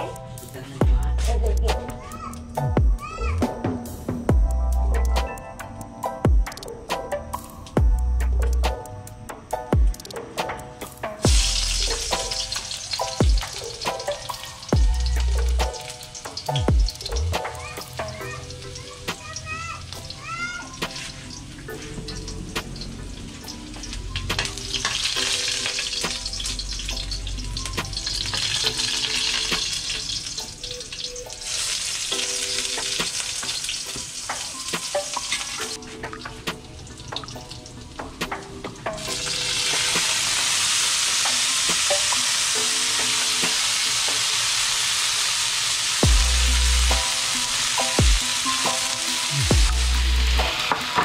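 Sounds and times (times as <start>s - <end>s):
garlic sizzling in hot oil: 10.9s - 51.0s.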